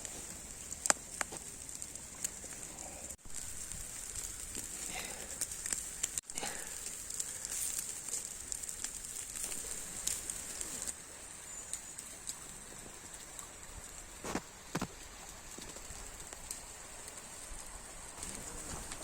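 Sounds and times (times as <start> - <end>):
campfire crackling: 0.0 - 19.0.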